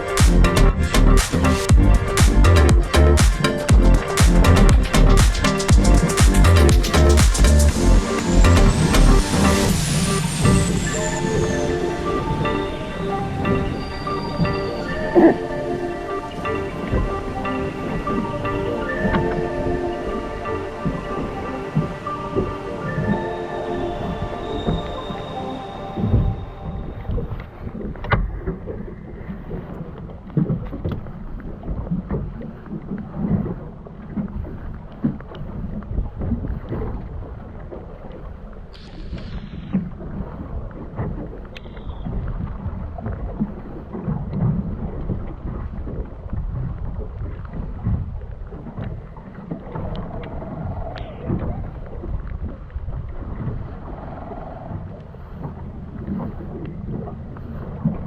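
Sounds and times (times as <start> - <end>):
brief higher sound: 0.0 - 28.0
boat rumbling at sea: 0.0 - 38.7, 39.3 - 58.0
wind: 0.0 - 58.0.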